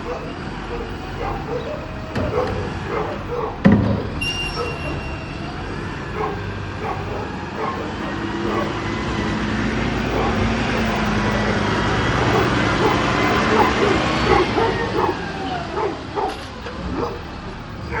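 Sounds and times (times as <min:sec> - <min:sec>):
garbage truck engine and hydraulics: 0:00.0 - 0:18.0
loud bang: 0:03.6 - 0:04.8.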